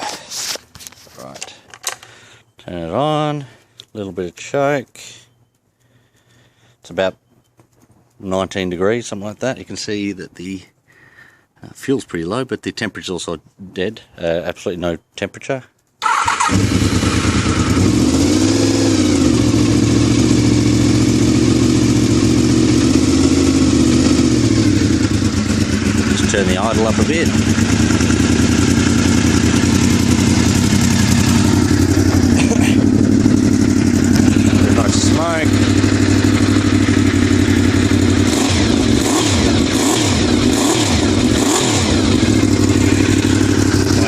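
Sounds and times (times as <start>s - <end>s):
motorcycle engine idling: 16.0s - 44.0s.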